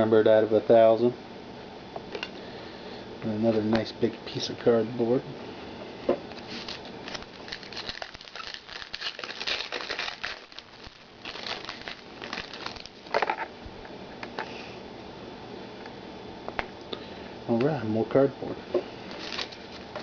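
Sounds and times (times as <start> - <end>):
wrapper crinkling: 6.4 - 13.5, 19.1 - 20.0.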